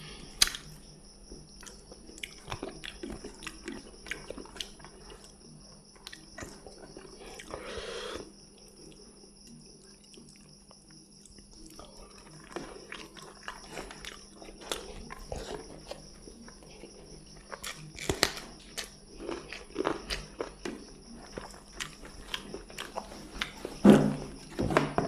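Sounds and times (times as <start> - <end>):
chewing and lip-smacking: 0.4 - 23.7.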